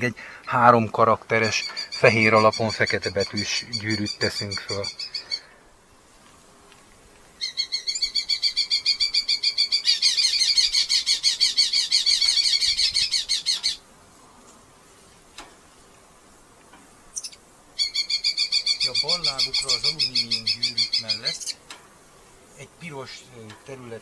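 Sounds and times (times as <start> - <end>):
falcon shrill chattering call: 7.4 - 13.8, 17.2 - 21.6.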